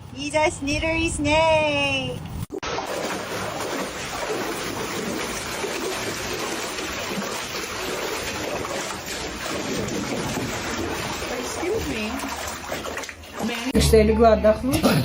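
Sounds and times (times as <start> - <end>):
light splashing: 2.5 - 13.8
running water: 2.5 - 15.0.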